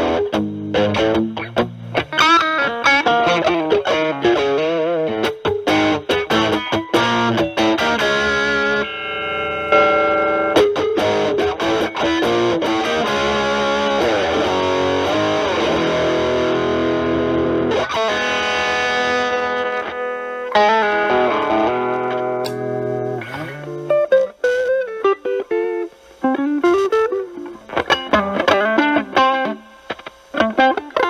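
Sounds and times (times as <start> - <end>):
distorted electric guitar lead: 0.0 - 31.0.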